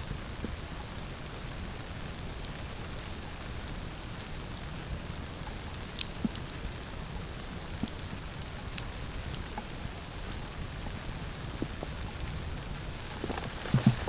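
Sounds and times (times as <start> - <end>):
rain on a tarp: 0.0 - 14.0.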